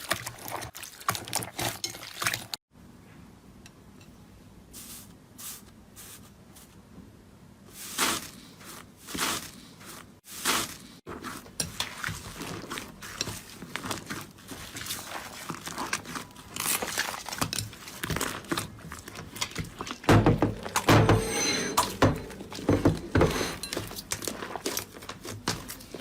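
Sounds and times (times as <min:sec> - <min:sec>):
slime squelching and crackling: 0:07.7 - 0:20.8, 0:23.7 - 0:26.0.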